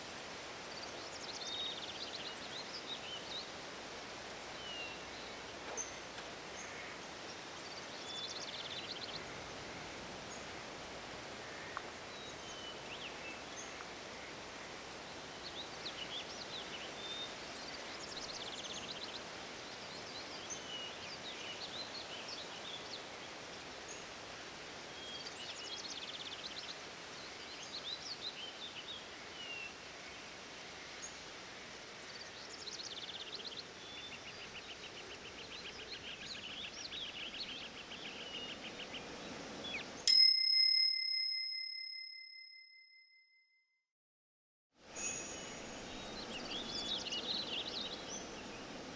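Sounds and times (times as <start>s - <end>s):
background hiss: 0.0s - 40.2s, 44.8s - 48.9s
bell-like timer ring: 40.1s - 43.2s, 45.0s - 46.1s
birds chirping and trilling: 45.2s - 48.9s.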